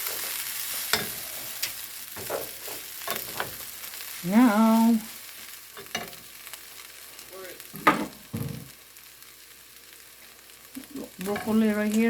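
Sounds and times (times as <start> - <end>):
noodles frying in a pan: 0.0 - 12.0.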